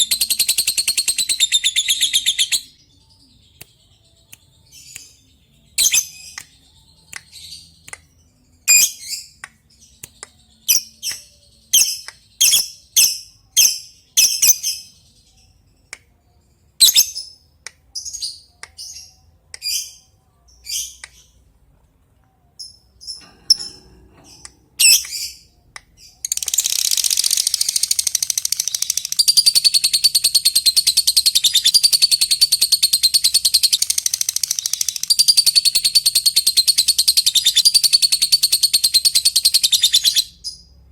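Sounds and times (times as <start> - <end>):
lovebird chirping and chattering: 0.0 - 2.7, 5.8 - 6.4, 10.6 - 14.9, 16.8 - 17.3, 24.3 - 40.7.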